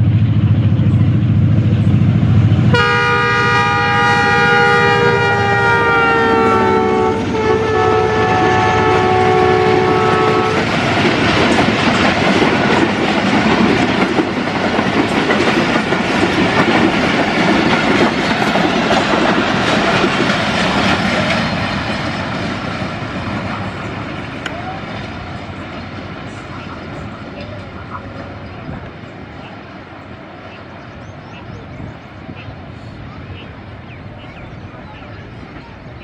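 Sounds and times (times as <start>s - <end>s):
train wheels running over rails: 0.0s - 36.0s
train air horn: 2.7s - 10.8s.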